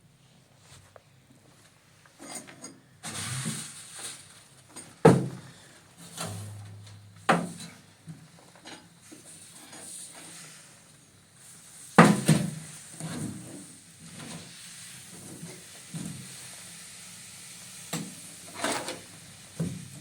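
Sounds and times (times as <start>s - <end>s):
rustling or scraping: 2.2s - 5.0s, 6.0s - 7.8s.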